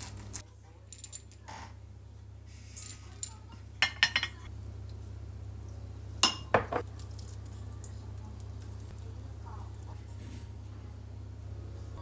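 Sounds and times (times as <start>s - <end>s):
tableware clinking and knocking: 3.8s - 4.4s, 6.2s - 6.9s.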